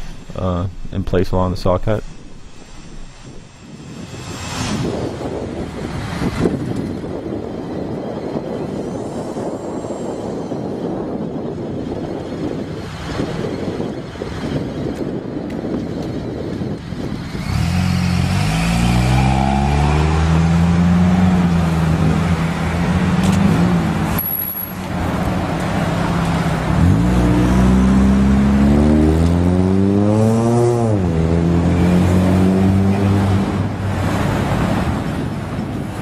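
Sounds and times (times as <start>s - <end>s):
vehicle engines running: 0.0s - 36.0s
engine accelerating: 17.1s - 35.0s.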